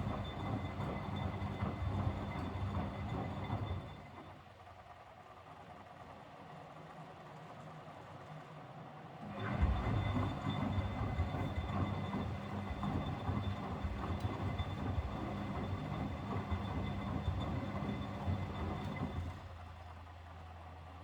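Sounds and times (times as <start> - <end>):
washing machine drum rumbling: 9.3 - 19.5.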